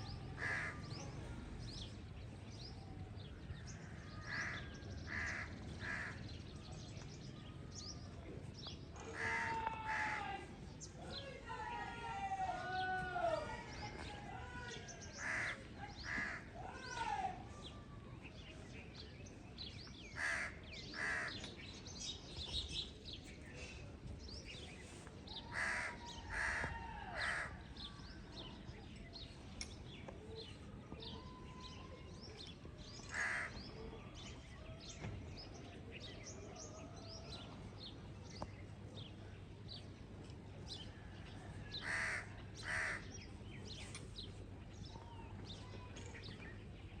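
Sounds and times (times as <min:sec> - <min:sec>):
loud harsh bird calls: 0:00.0 - 0:01.2, 0:03.7 - 0:06.5, 0:08.9 - 0:17.7, 0:20.1 - 0:21.6, 0:25.4 - 0:28.0, 0:33.0 - 0:34.3, 0:41.7 - 0:43.3
small birds chirping: 0:00.0 - 0:41.2, 0:41.8 - 0:47.0.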